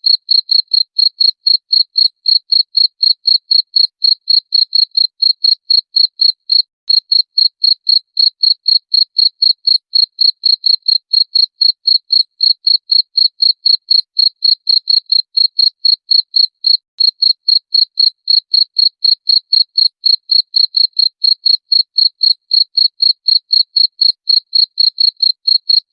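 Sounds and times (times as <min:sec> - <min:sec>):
cricket chirping: 0:22.0 - 0:25.8.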